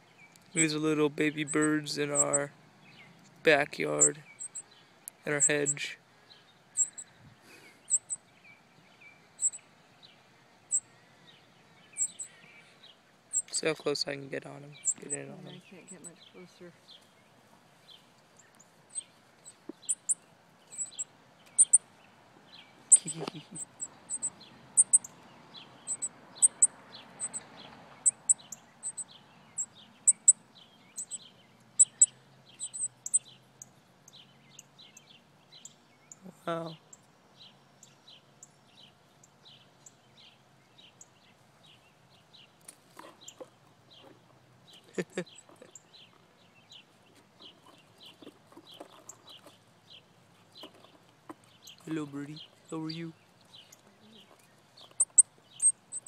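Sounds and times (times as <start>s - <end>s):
faint bird twittering: 0.1s - 13.8s, 14.7s - 21.9s, 22.5s - 50.0s, 50.6s - 56.0s
high thin bird chirps: 1.4s - 3.2s, 3.9s - 6.0s, 6.7s - 9.7s, 11.9s - 12.7s, 13.3s - 13.7s, 14.7s - 17.2s, 18.4s - 21.9s, 22.7s - 25.2s, 25.8s - 37.1s, 50.6s - 56.0s.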